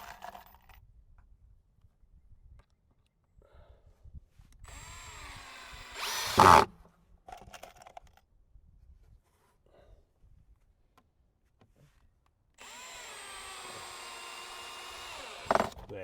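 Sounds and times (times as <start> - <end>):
power drill driving screw into wood: 4.7 - 6.8, 12.6 - 15.9.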